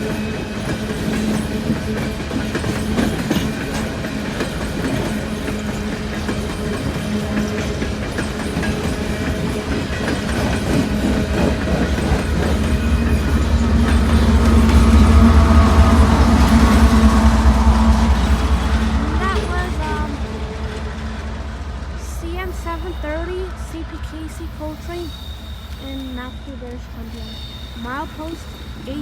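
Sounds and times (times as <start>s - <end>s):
train wheels clicking over rail joints: 0.0s - 29.0s.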